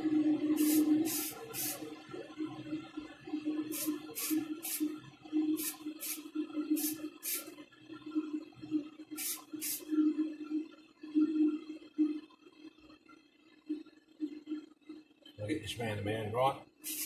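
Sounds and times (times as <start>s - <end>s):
spray can hissing blasts: 0.5s - 1.8s, 3.6s - 4.9s, 5.6s - 6.2s, 6.8s - 7.5s, 9.2s - 9.9s.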